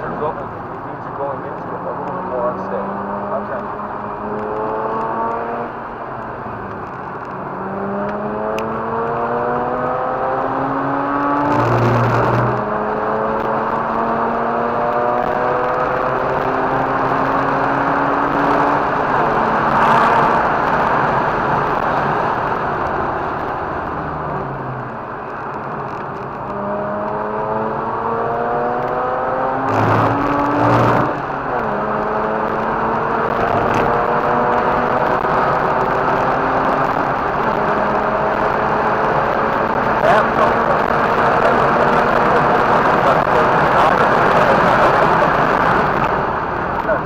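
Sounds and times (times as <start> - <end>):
rotary engine revving: 1.7 - 5.8, 7.4 - 22.1, 26.4 - 47.0
tyre and wind noise: 3.7 - 47.0.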